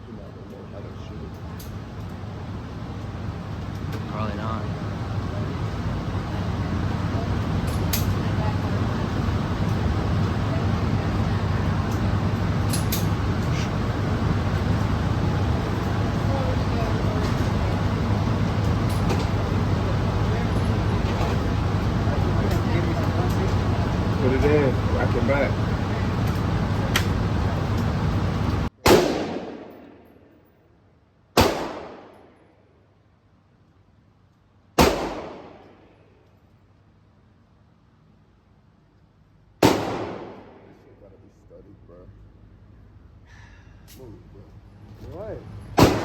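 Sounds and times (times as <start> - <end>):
low background rumble: 0.0 - 46.0
steady background noise: 0.0 - 46.0
rifle shots echoing: 28.8 - 30.0, 31.4 - 32.2, 34.8 - 35.7, 39.6 - 40.8, 45.8 - 46.0.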